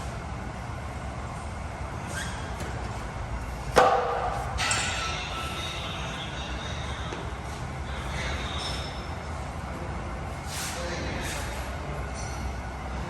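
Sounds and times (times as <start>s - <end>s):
gym weights clanking: 3.9s - 7.1s.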